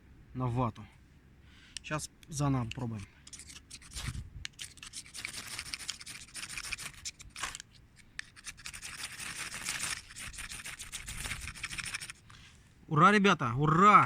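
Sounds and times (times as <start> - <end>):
fire steel scraped with steel: 2.8 - 12.6.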